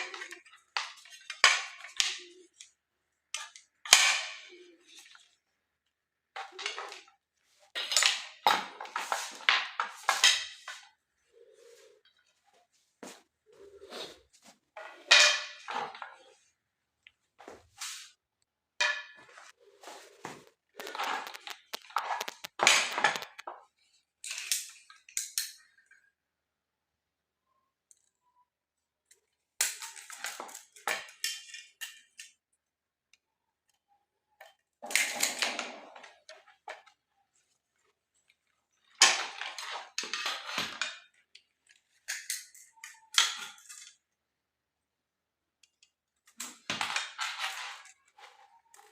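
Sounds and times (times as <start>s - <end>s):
hard objects clattering: 6.3s - 12.4s, 13.6s - 16.5s, 18.8s - 25.7s, 34.8s - 44.1s, 46.3s - 48.9s.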